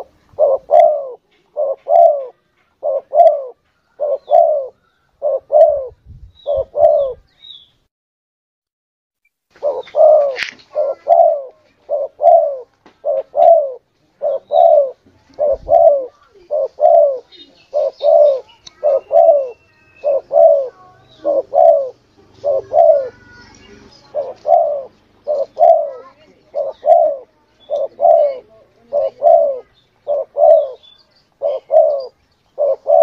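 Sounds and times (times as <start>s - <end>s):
dove cooing: 0.0s - 7.3s, 9.6s - 33.0s
faint small bird chirps: 15.8s - 21.9s, 29.5s - 33.0s.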